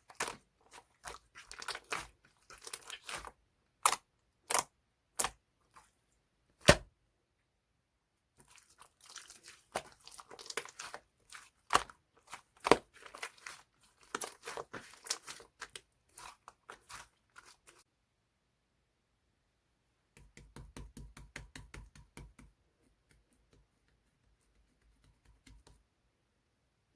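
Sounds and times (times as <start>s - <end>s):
slime squeezed and stretched: 0.0s - 5.9s, 8.4s - 17.8s
slime crackling and popping: 9.0s - 17.6s.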